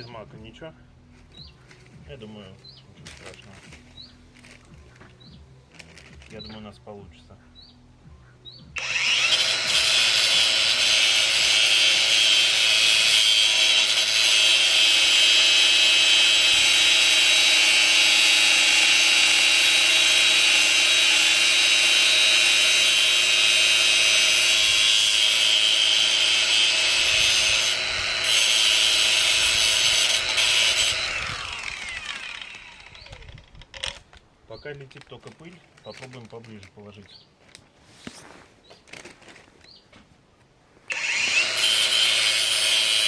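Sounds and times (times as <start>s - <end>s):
angle grinder grinding steel: 8.8s - 34.0s, 40.9s - 43.0s.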